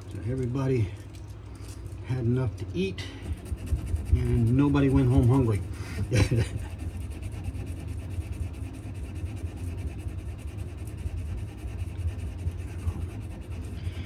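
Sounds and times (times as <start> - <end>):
steady low hum: 0.0 - 14.0
sandpaper rubbing on wood: 3.2 - 14.0.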